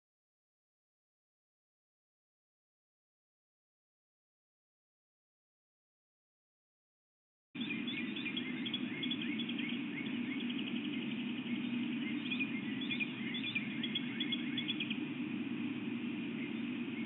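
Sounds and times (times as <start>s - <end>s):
small birds singing: 7.6s - 17.0s
steady low hum: 7.6s - 17.0s.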